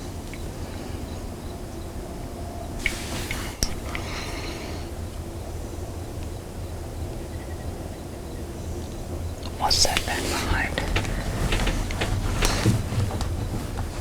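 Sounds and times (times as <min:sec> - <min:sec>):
brief hiss: 0:02.8 - 0:04.2.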